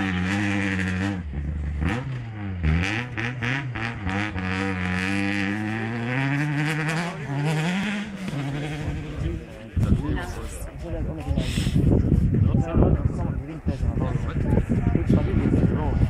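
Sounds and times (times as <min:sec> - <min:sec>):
rally car engine revving: 0:00.0 - 0:10.7.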